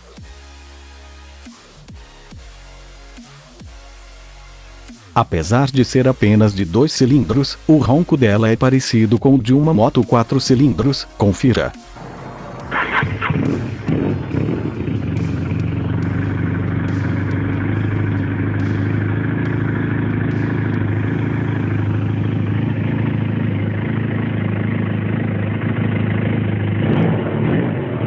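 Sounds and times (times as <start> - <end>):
motorcycle engine running: 11.5 - 28.0.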